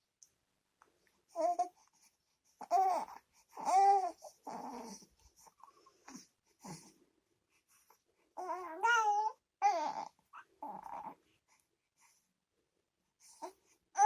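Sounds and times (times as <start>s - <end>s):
baby babbling: 1.4s - 1.8s, 2.6s - 5.0s, 8.4s - 11.2s.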